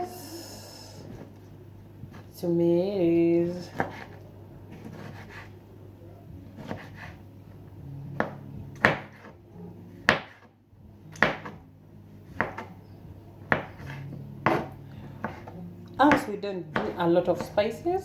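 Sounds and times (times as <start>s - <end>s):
faint low hum: 0.0s - 18.0s
sharp knocks on wood: 8.2s - 9.2s, 10.1s - 10.5s, 11.2s - 11.6s.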